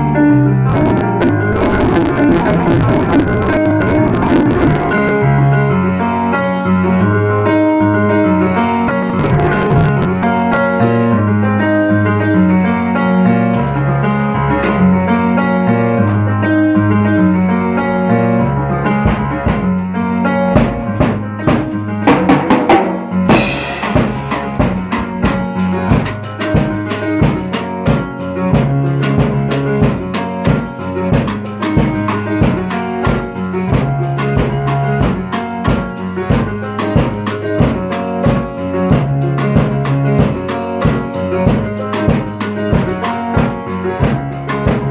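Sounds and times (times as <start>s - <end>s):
keyboard and bass chords: 0.0s - 44.9s
drum kit beat: 0.7s - 5.2s, 8.9s - 10.6s, 18.9s - 19.8s, 20.4s - 44.9s.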